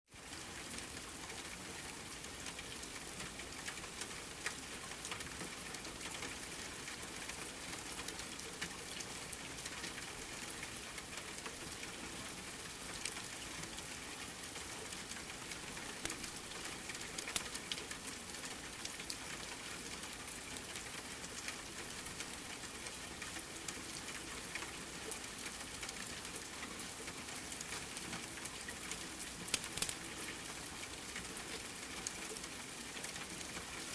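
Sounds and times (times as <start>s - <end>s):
steady rain: 0.1s - 33.9s
wood fire crackles: 14.5s - 31.2s.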